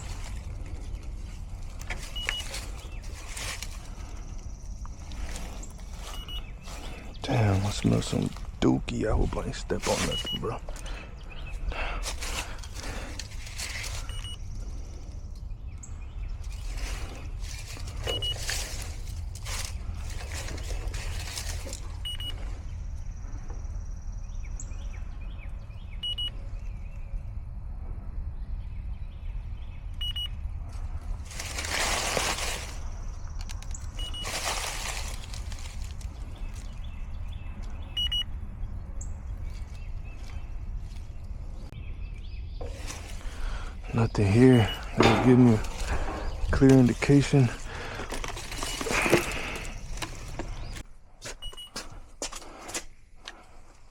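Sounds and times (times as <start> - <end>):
rustling and scuffing: 0.0 - 8.6, 9.2 - 14.4, 16.4 - 22.6, 30.8 - 33.0, 33.8 - 37.0, 42.6 - 53.0
steady low rumble: 0.0 - 52.2
leak detector ticking: 1.7 - 3.2, 4.0 - 6.8, 9.9 - 10.8, 14.0 - 14.5, 17.9 - 19.1, 21.9 - 22.5, 33.2 - 34.4, 37.9 - 38.3
short electronic beep: 10.0 - 10.6, 26.0 - 26.3, 30.0 - 30.3, 38.0 - 38.3.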